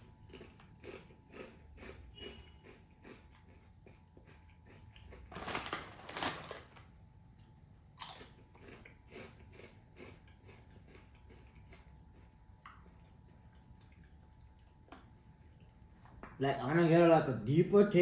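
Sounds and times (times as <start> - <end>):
potato chips crunching: 0.0 - 13.6.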